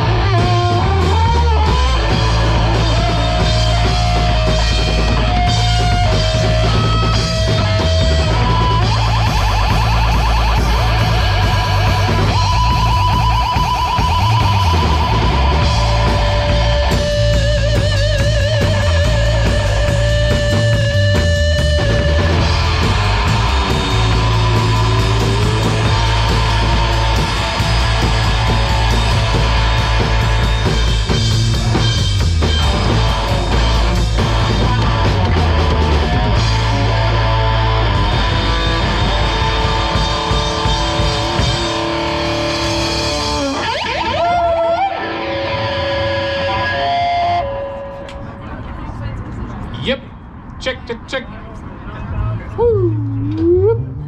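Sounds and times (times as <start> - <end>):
rock band playing loudly: 0.0 - 48.4
drums: 0.0 - 50.6
electric guitar vibrato notes: 52.6 - 54.0.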